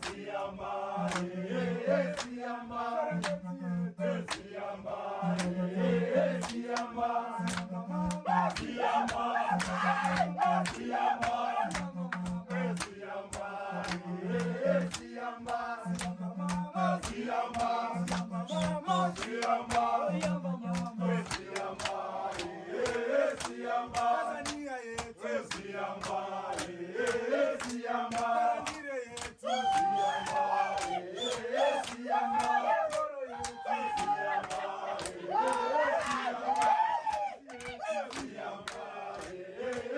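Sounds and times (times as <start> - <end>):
group singing call-and-response: 0.0 - 39.9
low held vocal notes: 0.3 - 24.4.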